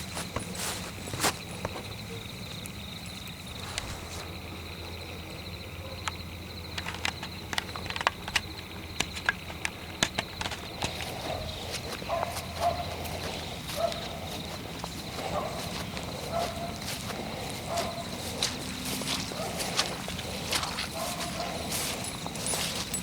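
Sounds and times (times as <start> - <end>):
footsteps crunching on twigs: 0.0 - 2.0, 3.1 - 4.8, 10.5 - 23.0
crickets chirping: 0.0 - 23.0.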